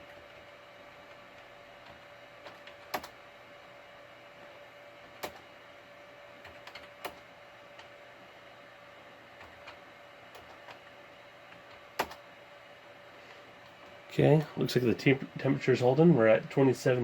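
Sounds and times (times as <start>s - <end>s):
faint steady hum: 0.0s - 17.0s
computer keyboard key presses: 12.0s - 12.2s.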